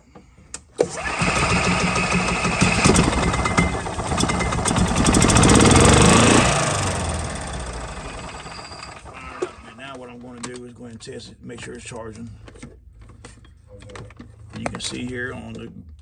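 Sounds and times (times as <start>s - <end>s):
starter click: 0.8s - 9.7s
golf cart engine cranking and running: 0.8s - 9.8s.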